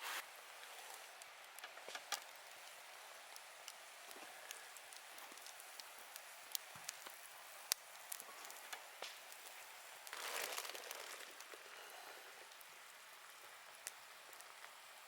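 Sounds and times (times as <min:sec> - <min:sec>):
fire hissing: 0:00.0 - 0:15.0
campfire crackling: 0:00.1 - 0:15.0
sharp fire pops: 0:00.7 - 0:11.6.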